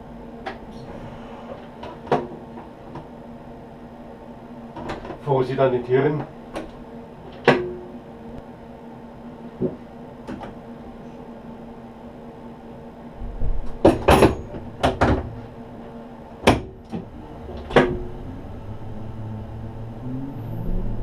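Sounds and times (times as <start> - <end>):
electric train hum: 0.0 - 21.0
clunks and knocks: 13.2 - 15.4.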